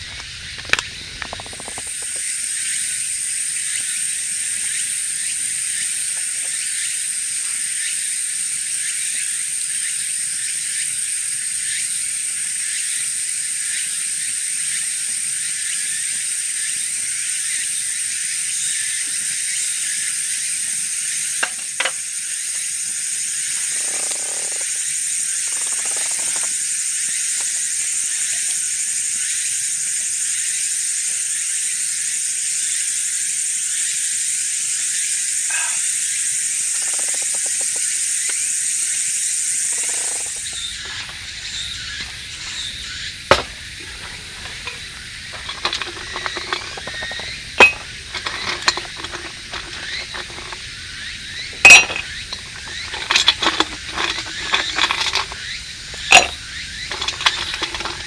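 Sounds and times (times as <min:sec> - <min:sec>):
metal utensils clinking: 0:00.0 - 0:02.2, 0:39.7 - 0:58.0.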